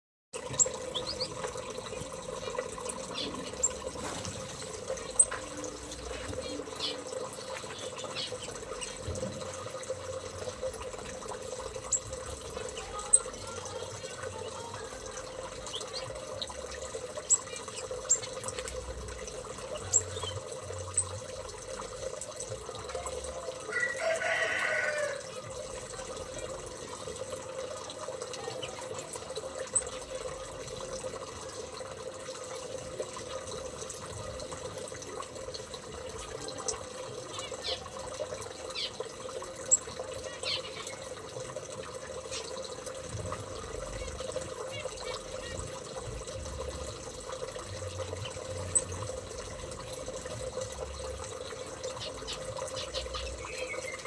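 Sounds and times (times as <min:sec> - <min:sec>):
small birds chirping: 0:00.4 - 0:09.7, 0:11.9 - 0:18.8, 0:19.6 - 0:21.2, 0:36.1 - 0:41.2, 0:51.8 - 0:54.0.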